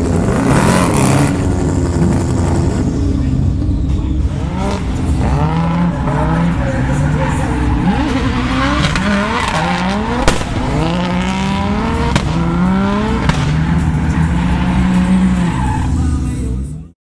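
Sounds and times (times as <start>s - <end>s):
car engine revving: 0.0s - 17.0s
tyres squealing: 4.0s - 16.7s
sharp cracks: 8.3s - 14.4s.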